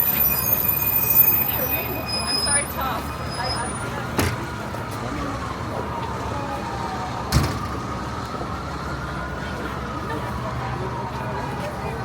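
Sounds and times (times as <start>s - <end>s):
city street traffic: 0.0s - 12.0s
faint siren wail: 4.5s - 12.0s.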